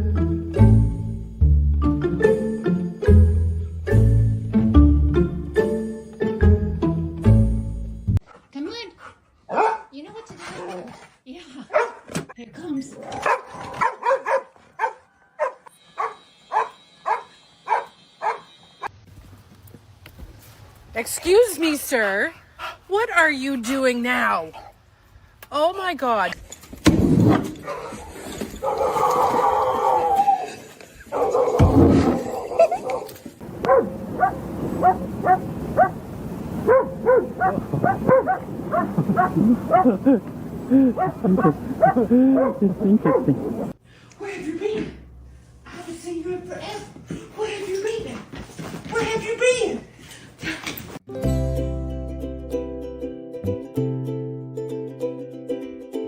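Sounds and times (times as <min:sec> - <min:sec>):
dog barking: 0:09.5 - 0:10.0, 0:11.7 - 0:12.1, 0:13.2 - 0:18.6, 0:28.6 - 0:29.1, 0:31.1 - 0:31.7, 0:32.3 - 0:36.0, 0:36.7 - 0:40.0, 0:41.0 - 0:43.6.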